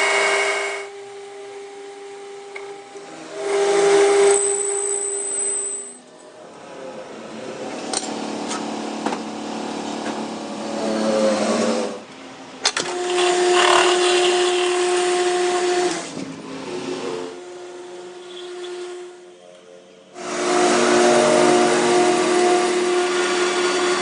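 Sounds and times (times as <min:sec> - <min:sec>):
power tool motor whine: 0:03.2 - 0:05.9, 0:12.8 - 0:19.2, 0:20.2 - 0:24.0.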